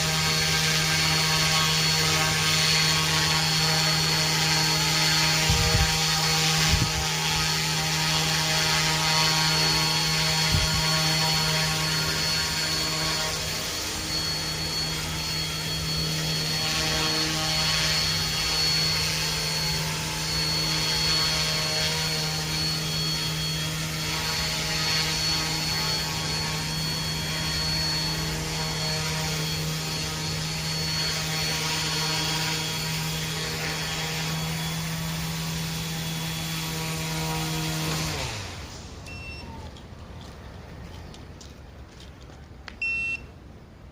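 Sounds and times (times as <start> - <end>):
model helicopter buzzing: 0.0 - 39.6
high whine: 0.0 - 39.8.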